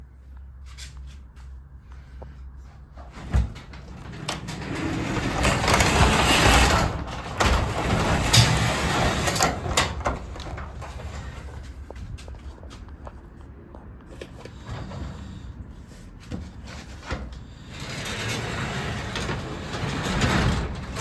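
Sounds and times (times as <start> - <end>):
garage door rumbling on tracks: 3.1 - 12.6, 14.3 - 21.0.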